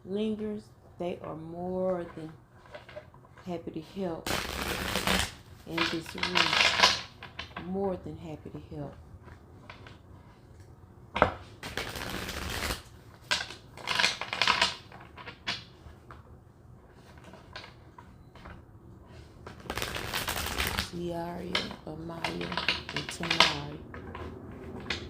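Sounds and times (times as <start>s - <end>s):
cards shuffling: 4.3s - 7.1s, 11.6s - 15.7s, 19.2s - 23.6s.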